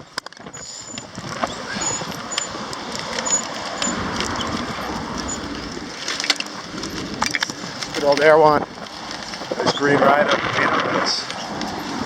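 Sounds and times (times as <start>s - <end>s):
light clicks and rattles: 0.0s - 12.0s
wind rushing over microphone: 0.0s - 12.0s.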